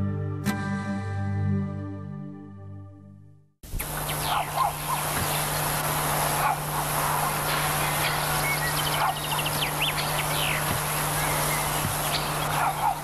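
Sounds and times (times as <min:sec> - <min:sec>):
steady hiss: 0:03.6 - 0:13.0
low even hum: 0:03.7 - 0:13.0
small birds chirping: 0:03.8 - 0:13.0.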